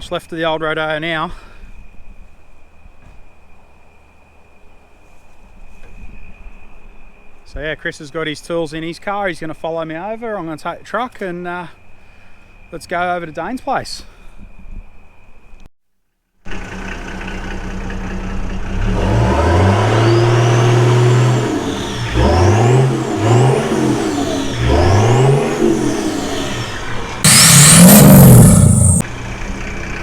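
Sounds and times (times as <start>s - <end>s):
vehicle engine revving: 18.6s - 29.4s
thin whine: 20.0s - 29.0s.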